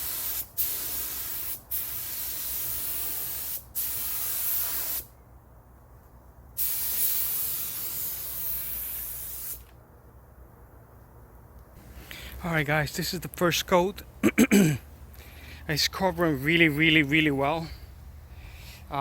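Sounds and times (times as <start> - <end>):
paint spray gun hissing: 0.0 - 5.1, 6.6 - 9.7.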